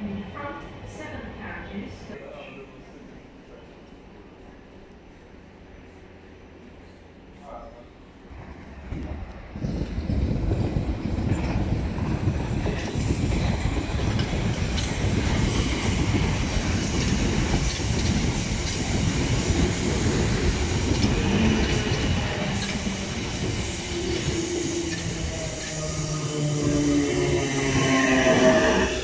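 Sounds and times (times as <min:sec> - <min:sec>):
train wheels rumbling on rails: 0:07.5 - 0:29.0.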